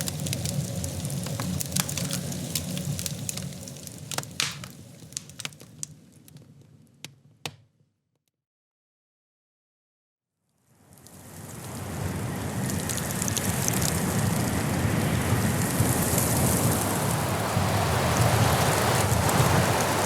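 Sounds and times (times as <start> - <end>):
wood fire crackling: 0.0 - 7.6, 11.0 - 20.0.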